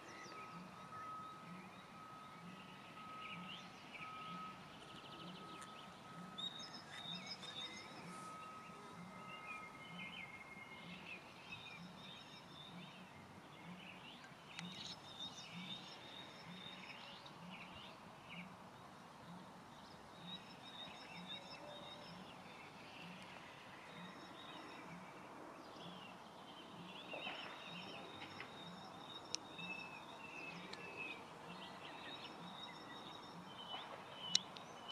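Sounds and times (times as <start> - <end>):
soft low pulse: 0.0 - 14.0
songbirds chirping and trilling: 0.0 - 34.9.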